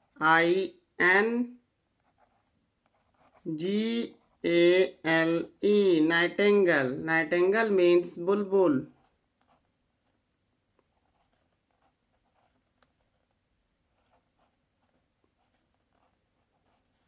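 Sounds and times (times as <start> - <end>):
small ticks and scratches: 1.9 - 3.5, 8.9 - 17.0.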